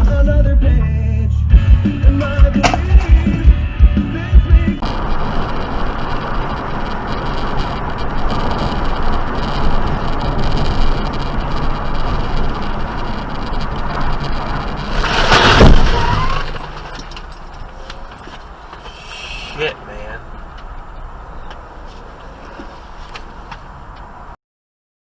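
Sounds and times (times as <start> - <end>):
road traffic noise: 1.6 - 24.4
loud burst of noise: 4.8 - 17.7.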